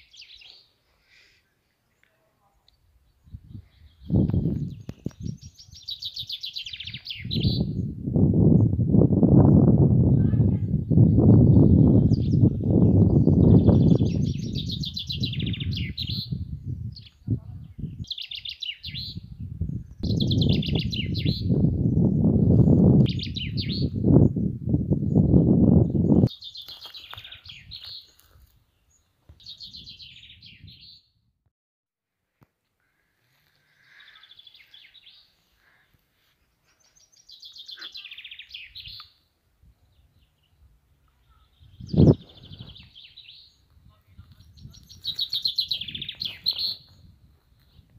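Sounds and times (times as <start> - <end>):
songbird singing: 0.0 - 31.3, 32.8 - 47.9
songbird trilling: 37.1 - 39.2, 44.5 - 46.9.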